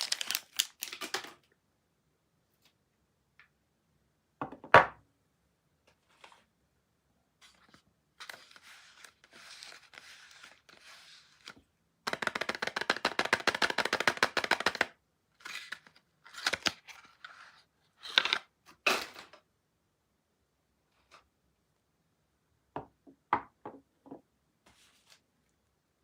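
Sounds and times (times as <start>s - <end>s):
wrapper rustling and crackling: 0.0s - 1.4s.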